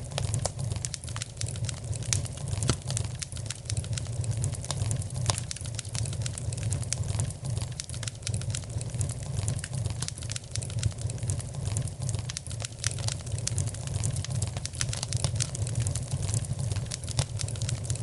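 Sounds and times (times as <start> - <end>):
fire crackling in fireplace: 0.0 - 18.0.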